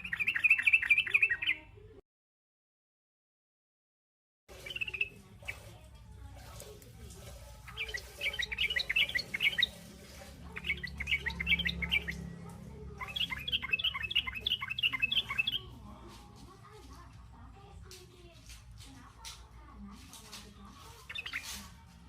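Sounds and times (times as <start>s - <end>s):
bird chattering chirps: 0.0s - 1.7s, 4.5s - 5.9s, 7.6s - 15.8s, 20.8s - 21.8s.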